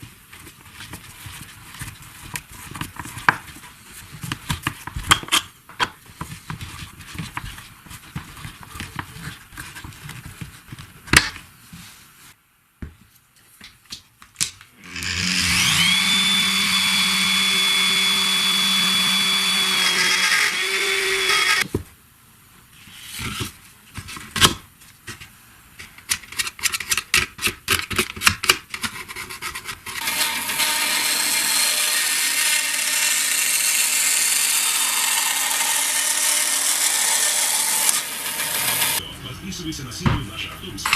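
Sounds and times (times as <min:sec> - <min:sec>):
power tool motor whine: 0:14.8 - 0:21.6, 0:30.0 - 0:39.0
rough noisy running sound: 0:14.8 - 0:21.6.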